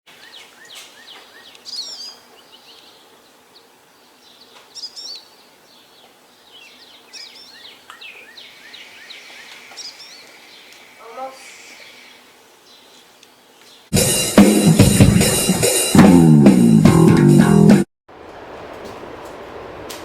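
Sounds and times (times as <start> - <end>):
songbirds chirping and singing: 0.1 - 13.9
faint outdoor hiss: 0.1 - 16.0.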